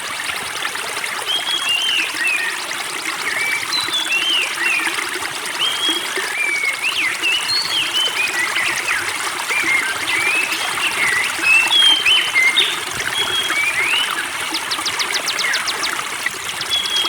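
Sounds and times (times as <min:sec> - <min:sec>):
water trickling: 0:00.0 - 0:17.0
songbirds whistling: 0:05.6 - 0:17.0.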